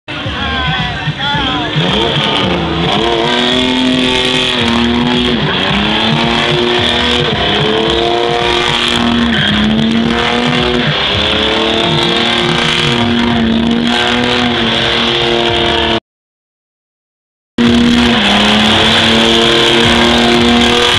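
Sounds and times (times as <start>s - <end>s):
car engine revving high: 0.1s - 16.0s, 17.6s - 20.9s.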